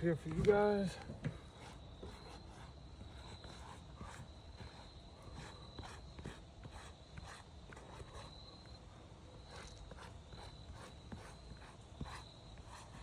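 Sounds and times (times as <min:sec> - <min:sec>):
footsteps on shingle roof: 0:00.0 - 0:02.2.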